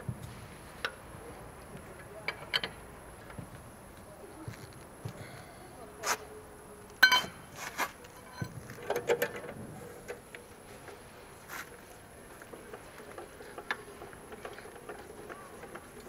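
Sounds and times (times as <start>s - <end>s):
metal tools clinking: 7.0s - 9.5s.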